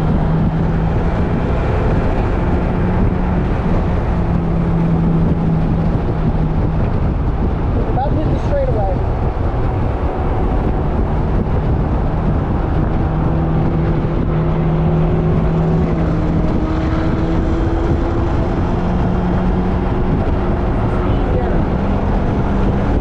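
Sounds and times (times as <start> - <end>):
car engine running hard: 0.0 - 23.0
road and wind noise: 0.0 - 23.0.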